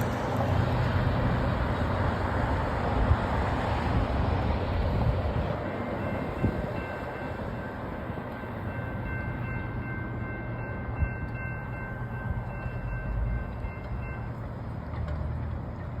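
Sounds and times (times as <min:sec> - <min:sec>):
train rumbling past: 0:00.0 - 0:16.0.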